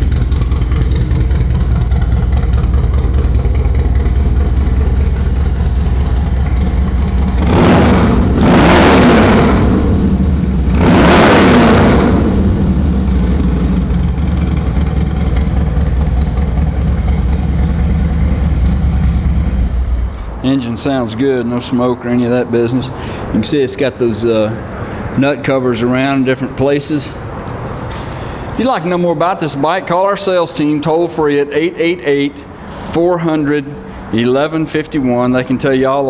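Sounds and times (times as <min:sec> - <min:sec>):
motorcycle engine idling: 0:00.0 - 0:20.4
motorcycle engine revving: 0:00.0 - 0:20.4.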